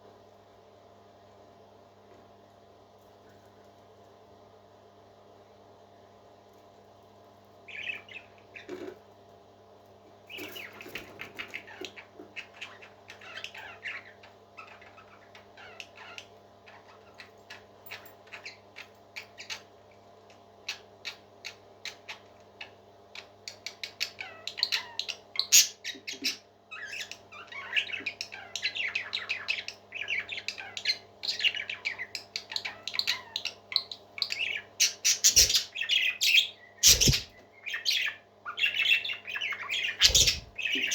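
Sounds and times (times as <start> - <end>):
parrot chirping: 7.7 - 8.7, 10.3 - 19.6, 23.9 - 40.9.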